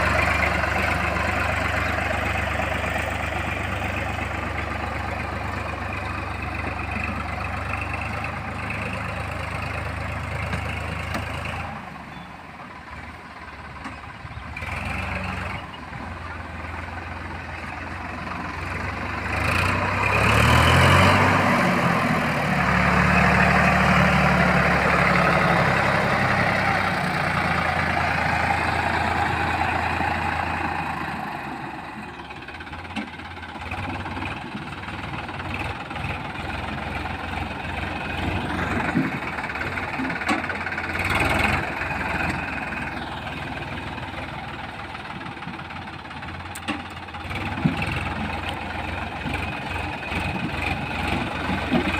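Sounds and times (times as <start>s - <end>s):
diesel engine revving: 0.0s - 51.9s
clunks and knocks: 38.5s - 40.7s, 46.5s - 48.6s, 50.2s - 51.9s.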